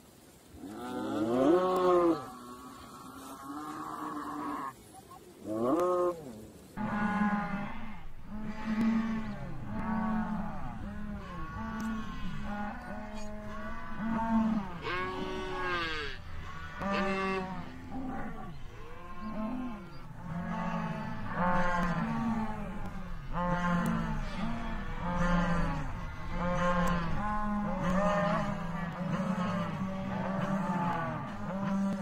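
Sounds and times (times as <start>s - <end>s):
cattle mooing: 6.8s - 32.0s.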